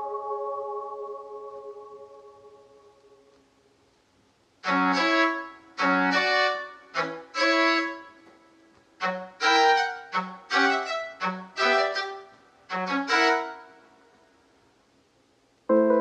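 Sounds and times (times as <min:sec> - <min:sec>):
synthesizer bowed-string melody: 0:04.6 - 0:08.1, 0:09.0 - 0:13.7.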